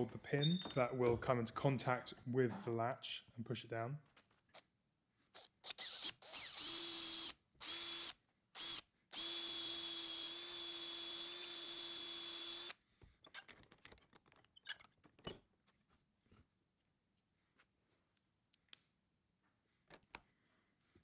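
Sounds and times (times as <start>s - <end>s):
power tool motor whining: 5.4s - 12.8s.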